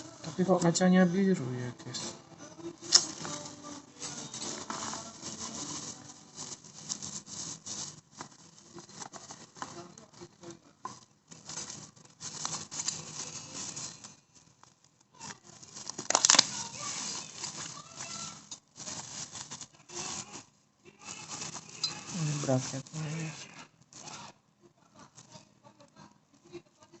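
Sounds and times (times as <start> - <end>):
packaging rustling and crinkling: 2.8 - 24.3.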